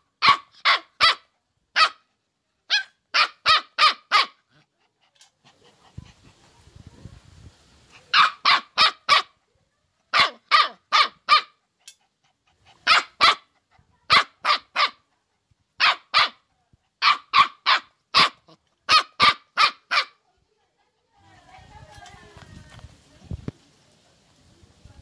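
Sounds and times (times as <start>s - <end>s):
dog barking: 0.2s - 2.0s, 2.7s - 4.4s, 8.1s - 9.4s, 10.1s - 11.6s, 12.8s - 13.5s, 14.1s - 15.0s, 15.8s - 16.4s, 17.0s - 20.2s.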